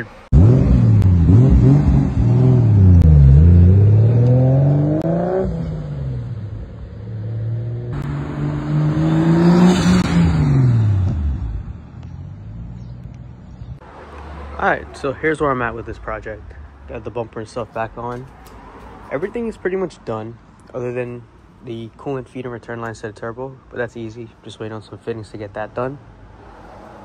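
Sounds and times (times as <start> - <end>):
car engine accelerating: 0.0 - 15.1.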